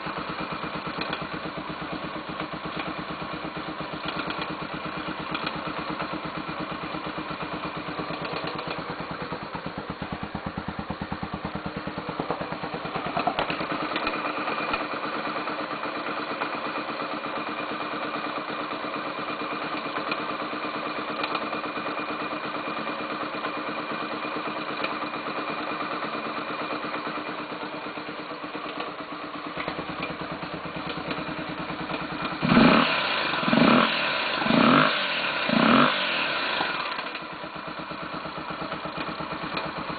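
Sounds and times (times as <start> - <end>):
engine tapping: 0.0 - 39.9
motorcycle engine idling and revving: 0.0 - 39.9.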